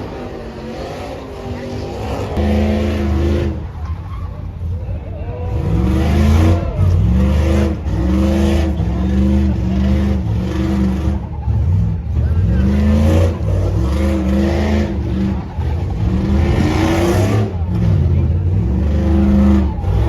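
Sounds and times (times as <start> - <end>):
truck engines revving: 0.0 - 20.0.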